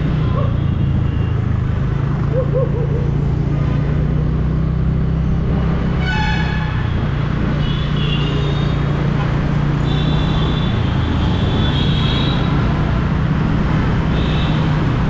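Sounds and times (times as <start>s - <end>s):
scooter engine running: 0.0s - 5.2s
street traffic: 0.0s - 15.0s
vehicle horn honking: 6.0s - 7.0s, 7.6s - 8.8s, 9.8s - 12.6s.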